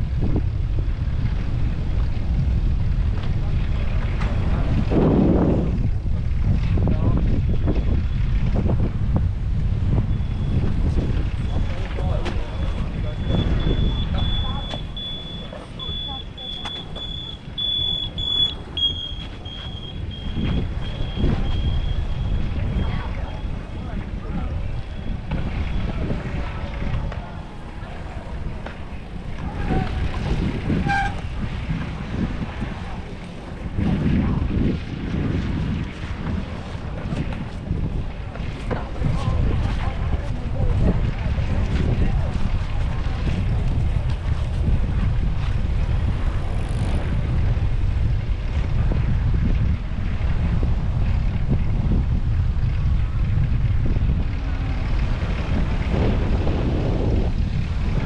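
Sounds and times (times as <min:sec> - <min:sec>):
wind buffeting microphone: 0:00.0 - 0:58.0
brief high tone: 0:12.7 - 0:22.0.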